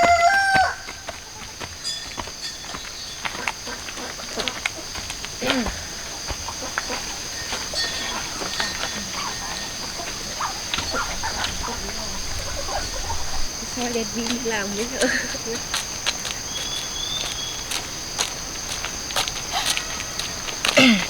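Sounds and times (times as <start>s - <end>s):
chickens calling: 0.0s - 21.0s
high-pitched insect drone: 0.0s - 21.0s.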